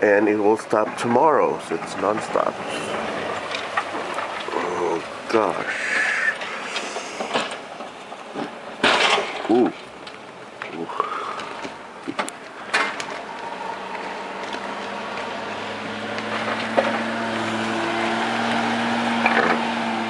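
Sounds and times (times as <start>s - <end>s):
truck engine running: 0.6s - 20.0s
rushing noise: 1.6s - 7.9s.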